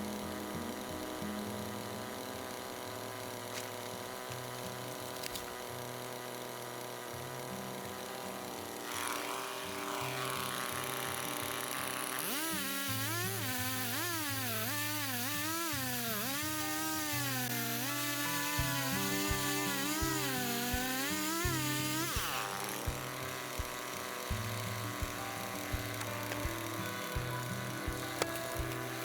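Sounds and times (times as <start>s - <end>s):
chainsaw engine revving: 0.0s - 29.0s
music with bass line: 18.6s - 29.0s.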